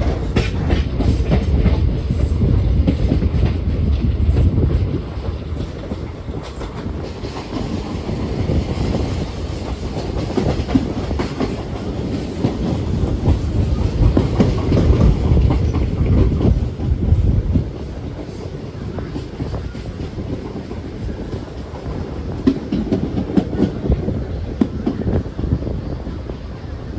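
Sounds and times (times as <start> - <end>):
wheels clacking over rail joints: 0.0 - 25.1
train rumbling: 0.0 - 26.9.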